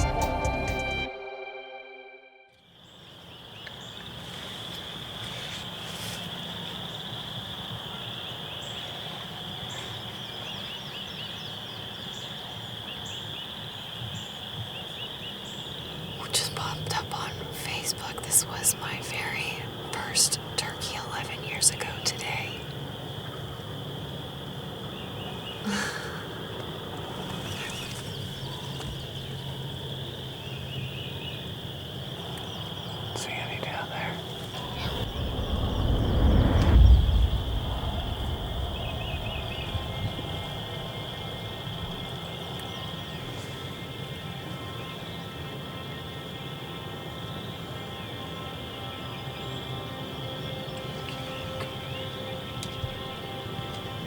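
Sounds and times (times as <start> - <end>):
high-pitched chorus: 0.0 - 2.5
frog chorus peeping: 6.4 - 53.8.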